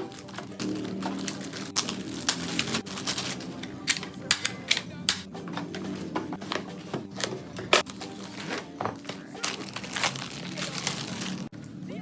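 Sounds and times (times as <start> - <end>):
plastic toy clicks and knocks: 3.2 - 5.3.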